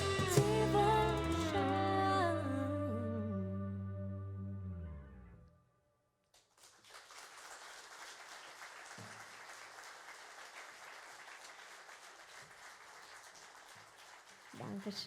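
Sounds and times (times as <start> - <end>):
music: 0.0 - 5.5
crowd applause: 6.6 - 15.0.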